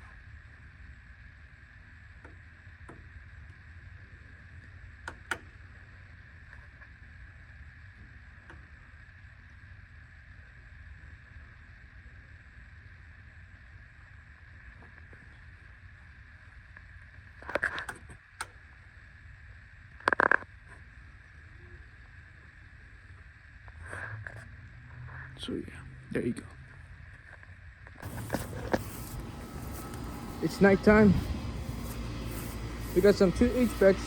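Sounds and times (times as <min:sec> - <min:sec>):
air conditioner unit humming: 0:28.0 - 0:34.0.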